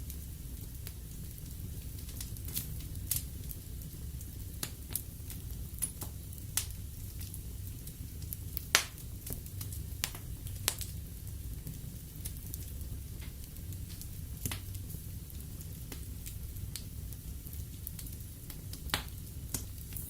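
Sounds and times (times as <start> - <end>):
wood fire crackling in fireplace: 0.0 - 20.0.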